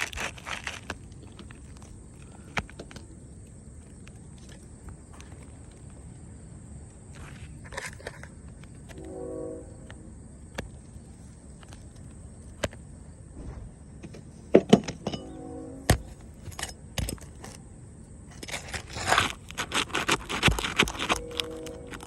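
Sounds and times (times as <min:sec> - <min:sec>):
scraping and crunching: 0:00.0 - 0:06.1, 0:18.3 - 0:22.0.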